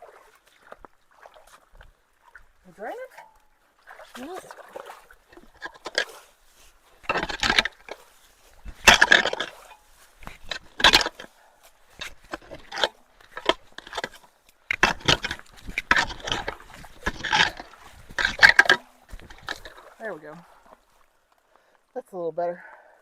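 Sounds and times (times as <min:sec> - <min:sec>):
water splashing: 0:00.0 - 0:22.1
scraping and rustling debris: 0:05.3 - 0:20.8.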